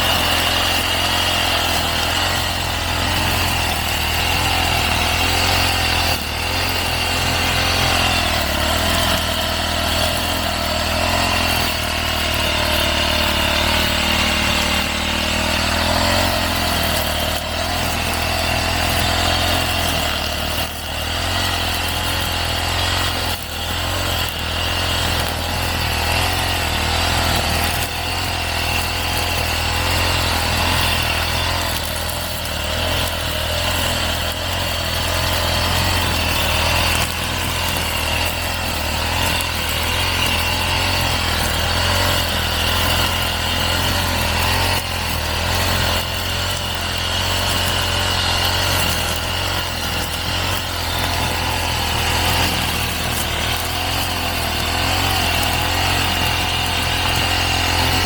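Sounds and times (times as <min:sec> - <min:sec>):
brush cutter cutting grass: 0:00.0 - 0:58.0.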